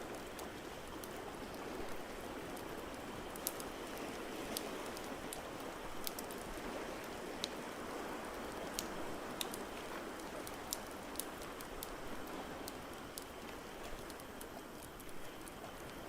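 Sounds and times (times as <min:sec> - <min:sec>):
wood fire crackling and popping: 0:01.9 - 0:07.5, 0:08.6 - 0:12.0.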